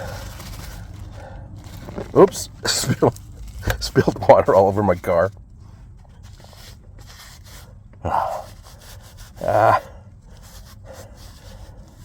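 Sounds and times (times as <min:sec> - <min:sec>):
man groaning breathily: 0:08.0 - 0:08.5, 0:09.4 - 0:10.1.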